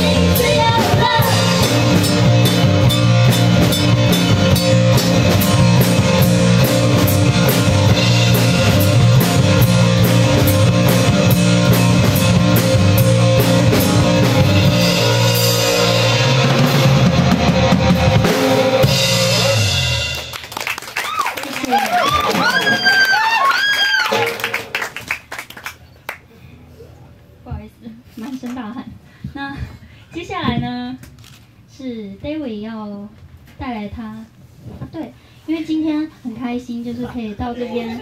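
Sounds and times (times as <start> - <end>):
live rock band playing: 0.0 - 20.6, 22.1 - 23.2, 23.9 - 25.0.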